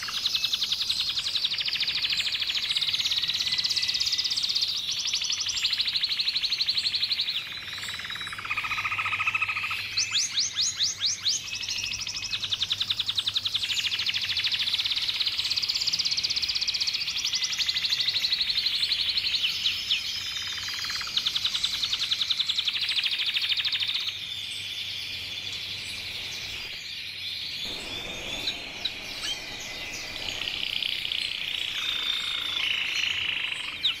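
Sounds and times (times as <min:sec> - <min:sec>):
canary singing: 0:27.7 - 0:34.0.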